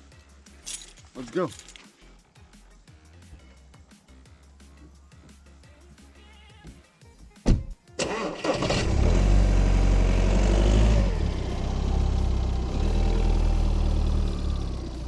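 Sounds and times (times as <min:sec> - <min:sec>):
vehicle engine starting and idling: 0:08.0 - 0:15.0.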